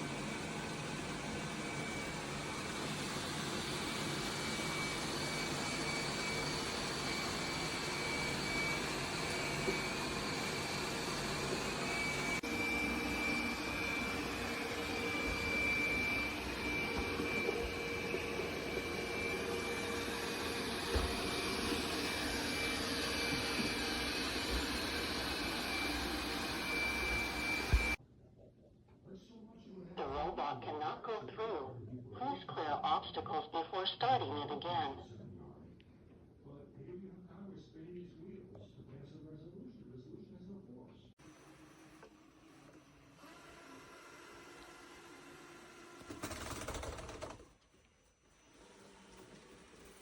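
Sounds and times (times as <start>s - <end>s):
robot vacuum whirring: 0.3s - 28.0s.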